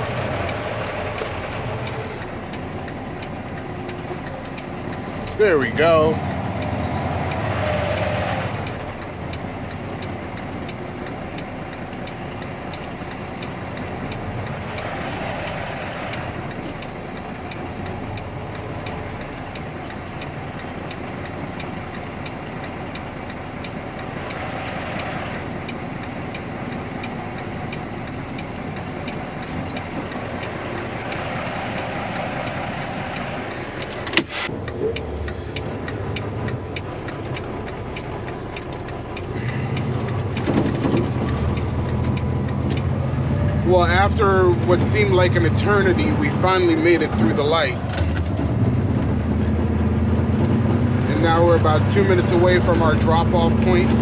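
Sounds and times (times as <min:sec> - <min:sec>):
truck diesel engine idling: 0:00.0 - 0:54.0
sharp click: 0:33.8 - 0:35.1.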